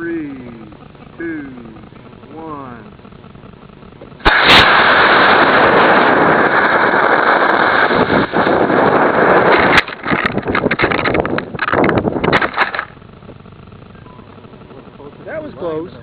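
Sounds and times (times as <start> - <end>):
irregular crackling: 0.0 - 15.7
rocket motor rushing: 0.0 - 16.0
sharp pop: 4.1 - 8.7.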